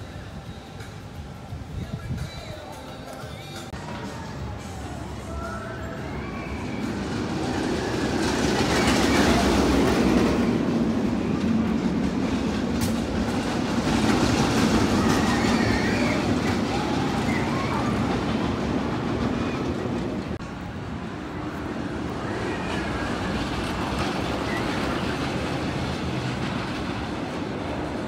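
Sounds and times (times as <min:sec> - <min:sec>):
roller coaster rumbling on track: 0:00.0 - 0:28.0
faint wheel squeal: 0:14.9 - 0:18.2.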